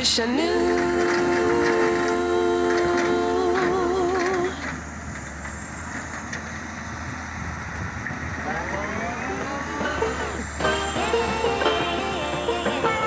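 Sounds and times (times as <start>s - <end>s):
excavator diesel engine running: 0.4s - 13.0s
rising whine: 0.6s - 13.0s
music: 9.7s - 13.0s.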